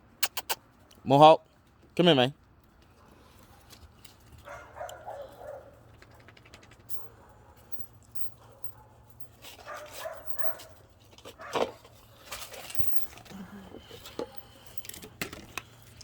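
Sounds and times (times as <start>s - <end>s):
puppy barking and yipping: 4.4s - 5.8s, 9.6s - 10.8s.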